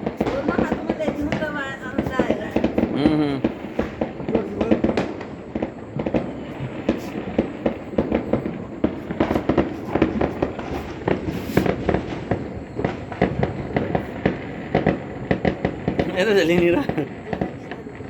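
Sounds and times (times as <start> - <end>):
firecrackers banging: 0.0 - 18.0.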